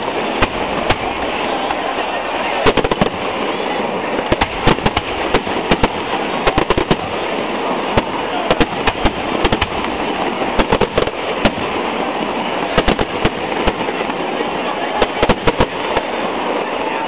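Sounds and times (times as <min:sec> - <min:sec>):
fireworks bangs and cracks: 0:00.0 - 0:17.0
rumbling crackling haze: 0:00.0 - 0:17.0.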